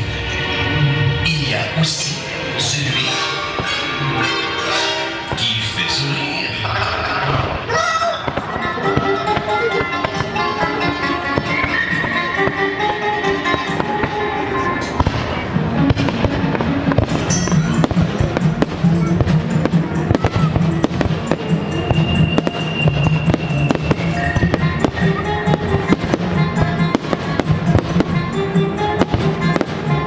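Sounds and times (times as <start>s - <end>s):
music: 0.0s - 30.0s
fireworks bangs and crackles: 3.5s - 6.4s, 7.1s - 30.0s.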